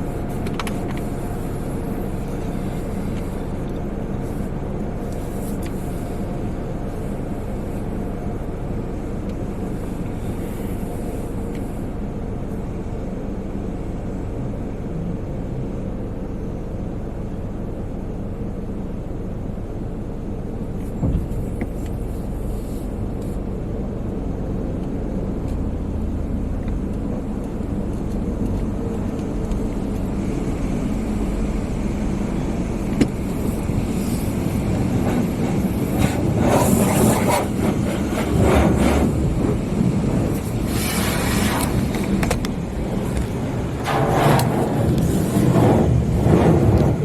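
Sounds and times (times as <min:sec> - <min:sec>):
car wash low rumble: 0:00.0 - 0:47.0
water spray and washing equipment: 0:33.2 - 0:47.0.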